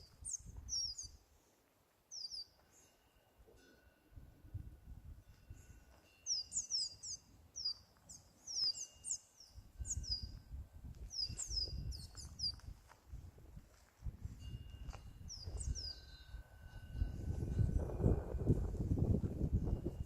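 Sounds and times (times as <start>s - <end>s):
small birds chirping: 0.0s - 1.2s, 2.1s - 3.0s, 5.6s - 12.8s, 15.2s - 16.4s
wind bells ringing: 2.6s - 7.5s, 8.3s - 10.6s, 14.2s - 20.0s.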